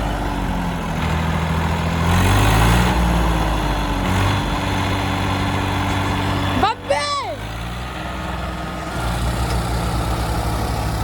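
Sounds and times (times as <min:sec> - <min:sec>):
diesel tractor engine running: 0:00.0 - 0:11.0.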